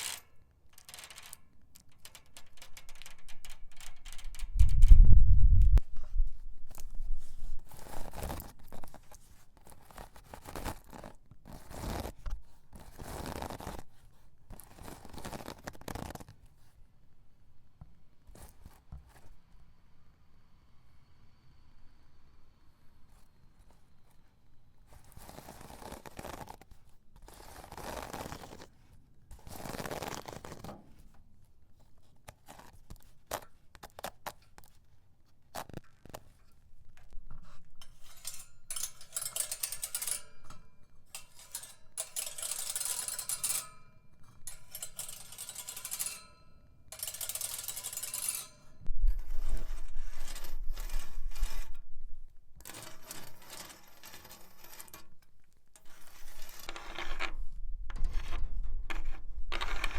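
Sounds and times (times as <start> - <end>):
nail scratching a straw hat: 0.0 - 0.2, 0.8 - 5.0, 6.7 - 16.8, 24.8 - 48.6, 49.3 - 51.8, 52.6 - 59.9
nail scratching broom bristles: 0.0 - 4.8, 37.4 - 48.6
metallic tapping and scraping: 0.0 - 13.9, 35.6 - 59.9.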